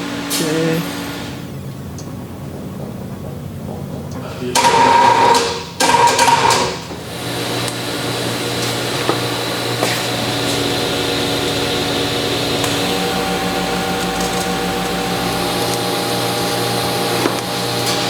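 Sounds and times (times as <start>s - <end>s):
shop tool motor whirring: 4.5s - 18.0s.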